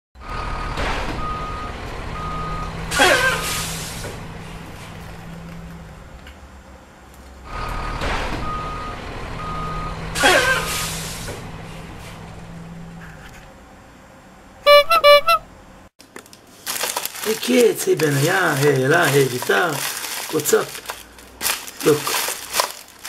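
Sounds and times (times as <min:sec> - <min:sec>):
truck reversing alarm beeping: 0:00.2 - 0:03.8, 0:07.5 - 0:11.0, 0:14.7 - 0:15.4
truck engine hum: 0:00.2 - 0:15.9
air brake hiss: 0:03.2 - 0:04.2, 0:10.2 - 0:11.5.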